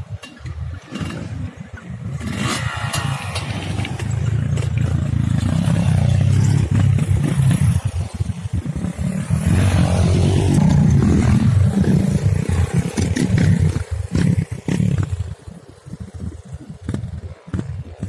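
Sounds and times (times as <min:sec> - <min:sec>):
sharp clicks and clatter: 0:00.1 - 0:08.6
motorcycle engine pulling hard: 0:00.5 - 0:18.0.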